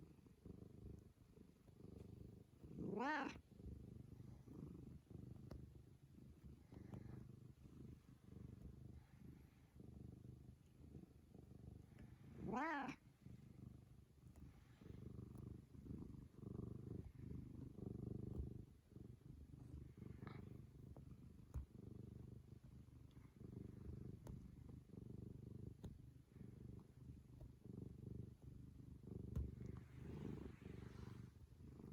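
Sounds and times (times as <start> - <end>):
cat purring: 0.0 - 31.9
cat vocal call: 2.9 - 3.4, 12.5 - 13.0.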